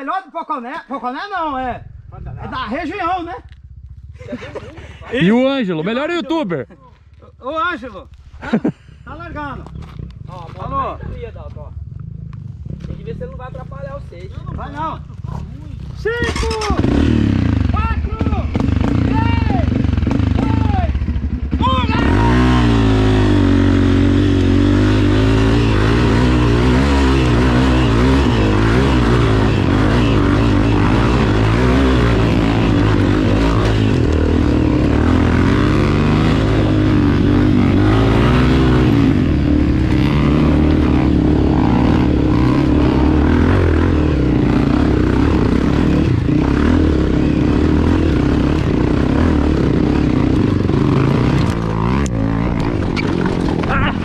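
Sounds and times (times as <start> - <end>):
motorcycle engine revving hard: 16.1 - 54.0.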